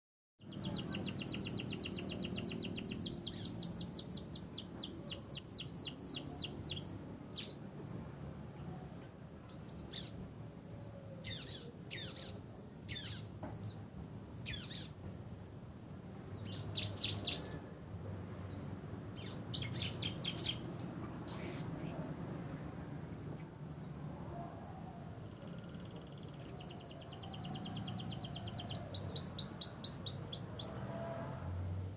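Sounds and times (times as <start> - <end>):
canary singing trills: 0.4 - 7.7, 8.7 - 13.8, 14.4 - 17.7, 18.4 - 22.1, 25.1 - 31.2.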